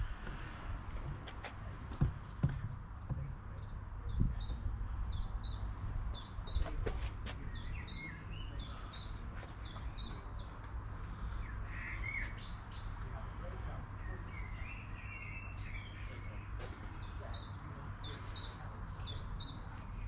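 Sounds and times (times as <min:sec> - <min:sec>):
dull knocks: 0:01.0 - 0:03.5.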